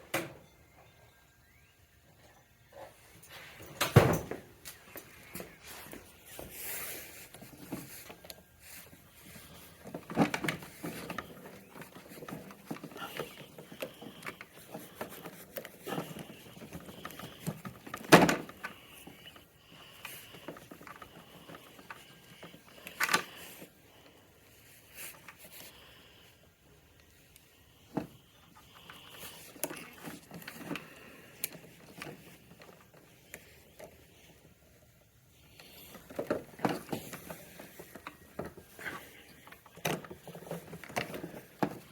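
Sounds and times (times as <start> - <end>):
hand tools clicking and rattling: 3.2 - 25.8, 27.0 - 41.9.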